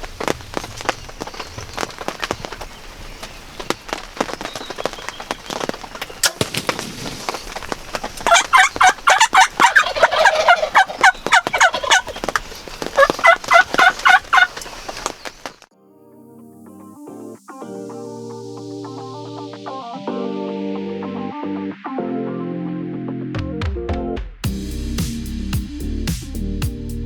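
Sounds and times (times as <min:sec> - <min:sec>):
raindrop ticks: 0:00.0 - 0:15.7
turkey gobbling: 0:06.0 - 0:15.5.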